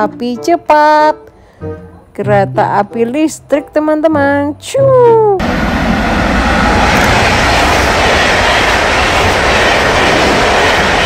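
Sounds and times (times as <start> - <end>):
train rushing rumble: 5.4 - 11.0.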